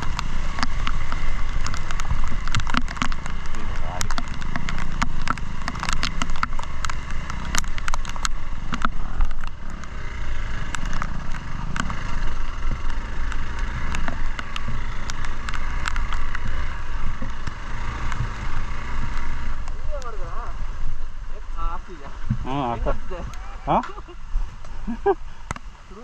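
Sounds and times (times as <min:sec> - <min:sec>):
sharp clicks and knocks: 0:00.0 - 0:20.1
motorcycle engine running: 0:00.0 - 0:26.0
road rumble: 0:00.0 - 0:26.0.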